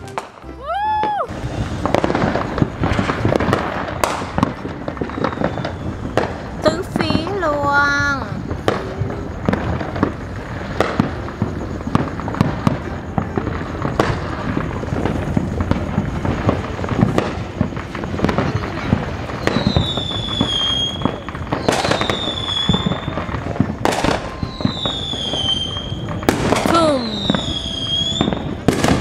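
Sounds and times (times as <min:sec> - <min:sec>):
falling firework whistles: 0:00.0 - 0:29.0
fireworks crackling and banging: 0:00.0 - 0:29.0.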